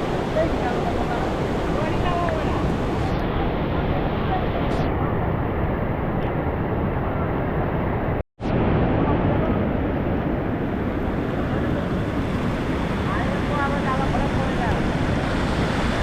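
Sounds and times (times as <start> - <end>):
floodwater rushing through dam gates: 0.0 - 4.8, 8.9 - 16.0.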